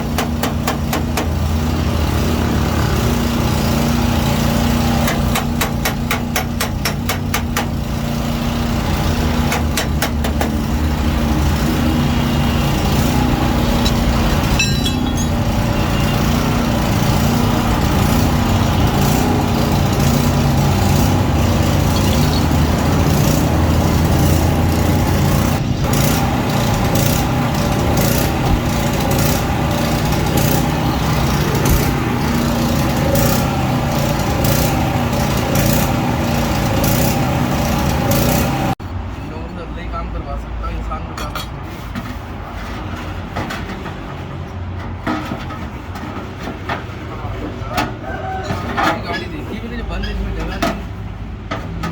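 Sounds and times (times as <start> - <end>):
engine running: 0.0 - 38.8.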